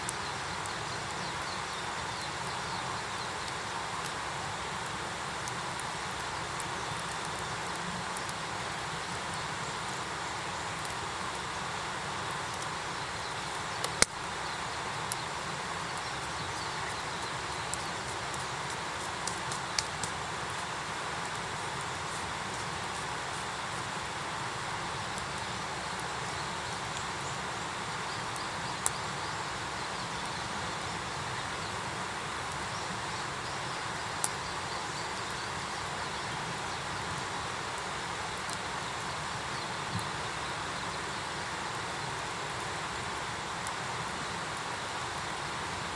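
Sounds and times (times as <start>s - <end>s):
wood fire hissing and crackling: 0.0s - 45.9s
sharp pops of fire: 13.8s - 14.3s.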